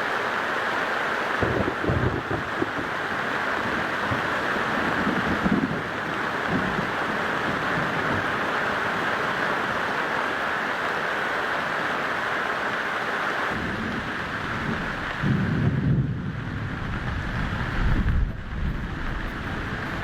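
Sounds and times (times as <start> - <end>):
wind buffeting microphone: 1.4 - 8.5, 13.6 - 20.0.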